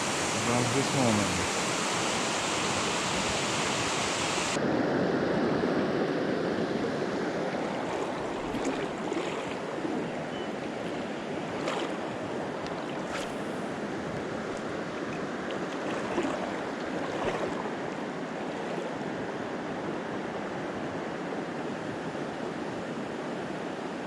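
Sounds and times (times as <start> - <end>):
river water rushing: 0.0 - 4.6, 6.9 - 20.5.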